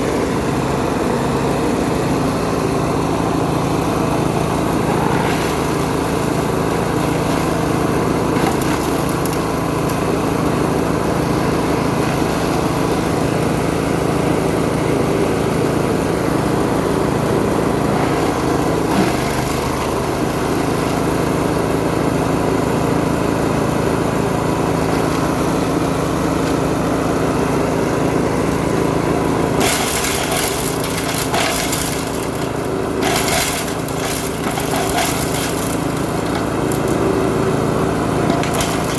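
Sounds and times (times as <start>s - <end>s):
wood chipper engine running: 0.0s - 38.9s
crackling of material in cutters: 4.7s - 14.4s, 17.8s - 21.5s, 24.7s - 26.9s, 29.5s - 38.9s.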